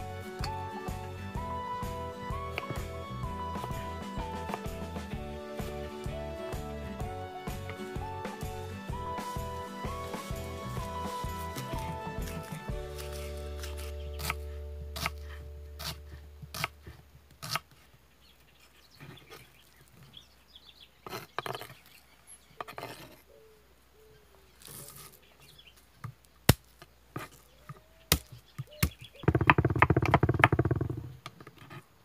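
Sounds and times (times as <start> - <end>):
knife chopping on wooden board: 10.8 - 15.2, 15.8 - 16.8.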